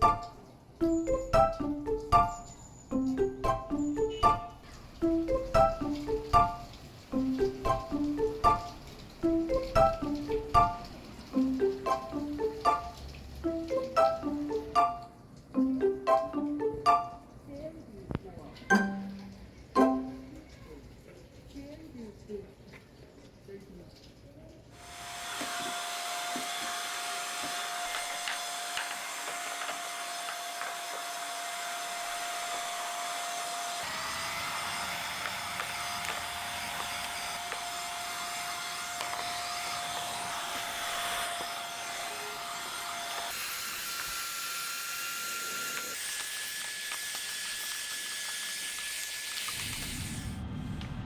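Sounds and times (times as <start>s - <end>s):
cordless vacuum running: 24.8s - 50.2s.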